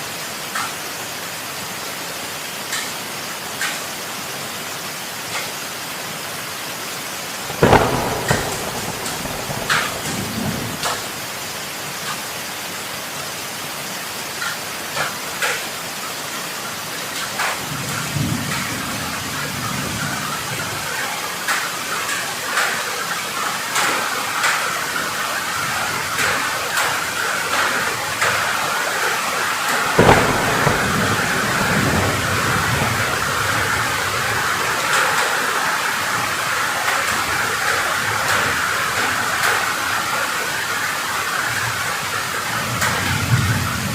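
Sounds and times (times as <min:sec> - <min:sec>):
heavy rain pattering: 0:00.0 - 0:43.9
sharp thunderclap: 0:07.4 - 0:11.6, 0:29.1 - 0:35.2
thunder rumbling: 0:07.4 - 0:11.7, 0:25.4 - 0:40.6, 0:41.2 - 0:43.9.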